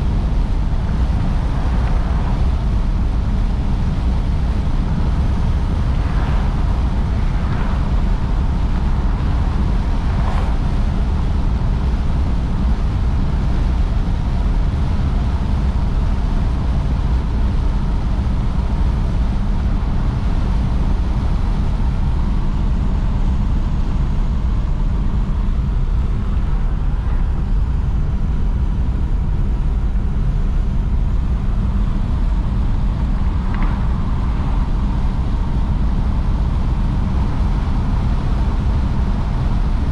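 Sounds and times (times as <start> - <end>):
car engine low rumble: 0.0 - 39.9
road noise: 0.0 - 39.9.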